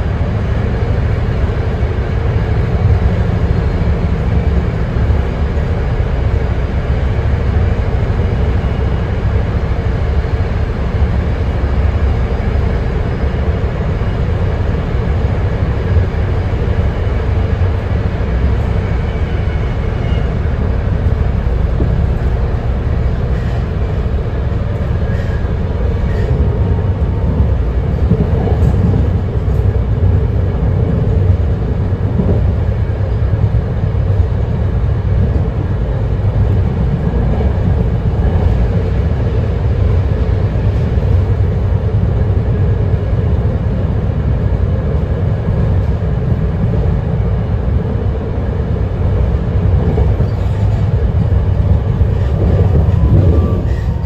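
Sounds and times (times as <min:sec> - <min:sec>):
train wheels rumbling: 0:00.0 - 0:54.0
faint high squeals: 0:52.8 - 0:54.0.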